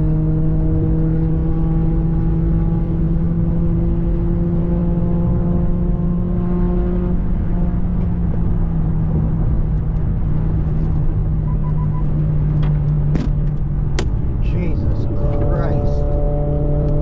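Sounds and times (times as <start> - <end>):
vehicle engine and road rumble: 0.0 - 17.0
faint short beeps: 11.5 - 12.1.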